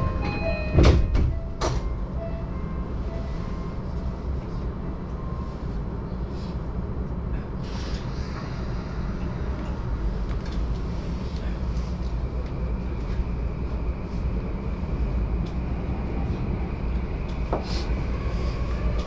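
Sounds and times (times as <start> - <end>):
train doors sliding shut: 0.0 - 2.0
train carriage low rumble: 0.0 - 19.0.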